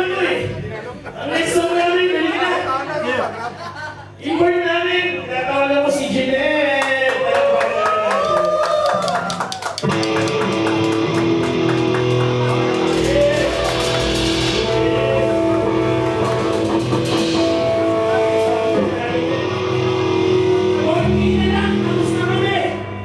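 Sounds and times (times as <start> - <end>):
bass guitar: 9.8 - 23.0
ringing guitar chords: 9.9 - 23.0
cymbals swelling: 10.5 - 23.0.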